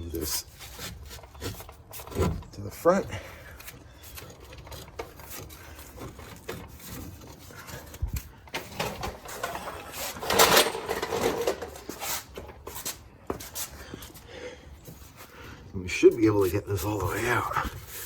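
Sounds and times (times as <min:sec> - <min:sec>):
scraping and rattling: 0:00.2 - 0:13.0
metal tools clicking and knocking: 0:07.9 - 0:11.9.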